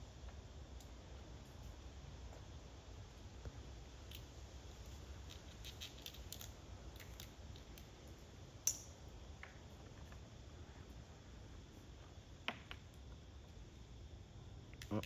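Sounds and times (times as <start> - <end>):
squirrel gnawing peanut shell: 4.0 - 8.8.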